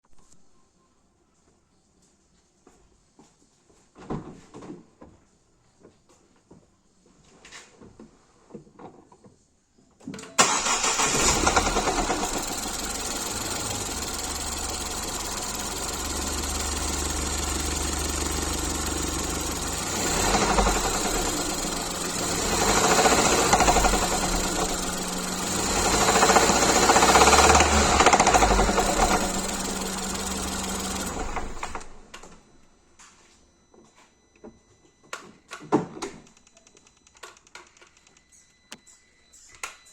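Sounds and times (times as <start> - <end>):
engine revving: 10.4 - 32.0
car engine starting and idling: 10.4 - 32.5.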